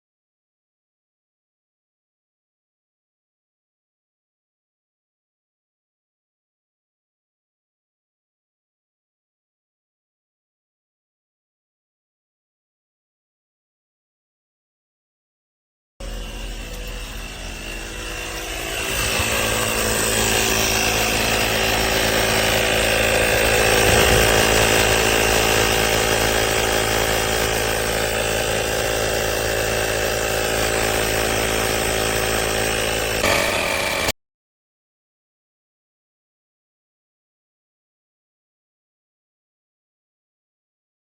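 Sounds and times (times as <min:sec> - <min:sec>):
tire inflator compressor humming: 0:16.0 - 0:34.1.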